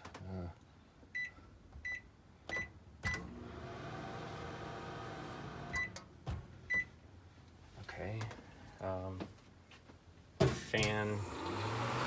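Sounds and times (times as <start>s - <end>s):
microwave humming: 3.0s - 6.0s, 10.9s - 12.0s.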